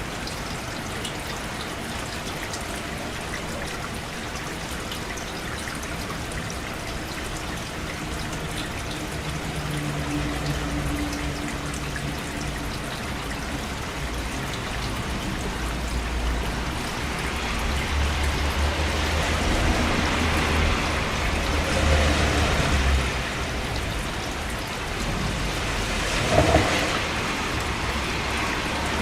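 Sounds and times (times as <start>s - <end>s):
steady rain falling: 0.0s - 29.0s
low rumble: 26.1s - 27.8s.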